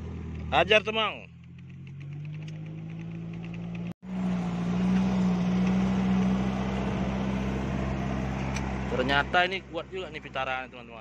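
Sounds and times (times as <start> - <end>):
car engine pulling uphill: 0.0 - 11.0.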